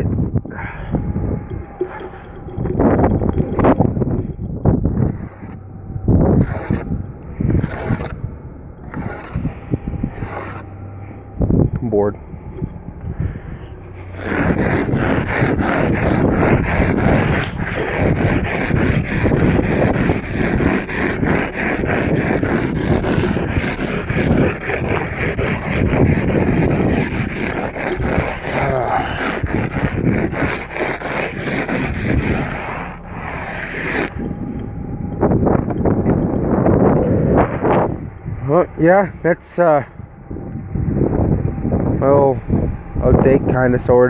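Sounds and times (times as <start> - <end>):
ice scraper scraping window glass: 4.9 - 5.6, 6.3 - 10.7, 14.0 - 34.3.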